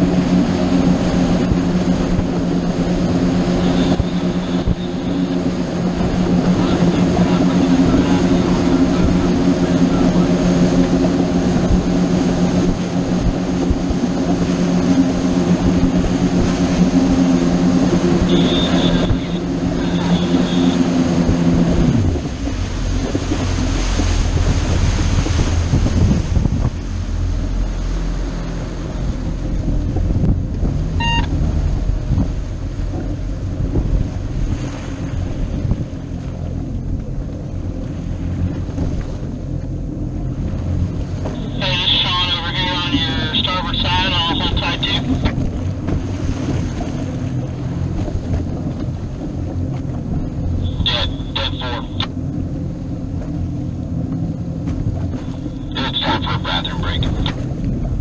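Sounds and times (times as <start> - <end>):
motorboat engine drone: 0.0 - 58.0
water rushing past: 0.0 - 58.0
short beep: 18.2 - 20.8, 31.0 - 31.3
wind buffeting microphone: 20.8 - 41.3, 45.1 - 50.6.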